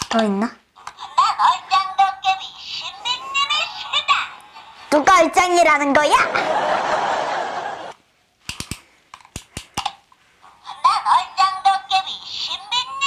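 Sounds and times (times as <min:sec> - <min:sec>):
plastic toy clicks: 0:00.0 - 0:00.2, 0:08.4 - 0:10.0
recorded voice from toy: 0:00.0 - 0:06.4, 0:10.5 - 0:13.0
toy electronic sound effects: 0:00.8 - 0:05.0, 0:10.6 - 0:13.0.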